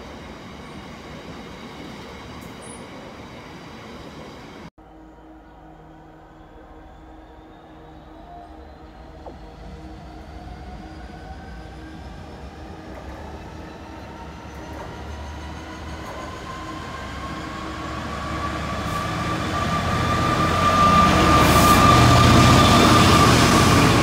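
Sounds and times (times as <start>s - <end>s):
train approaching: 0.0s - 24.0s
high-pitched whine rising: 4.8s - 24.0s.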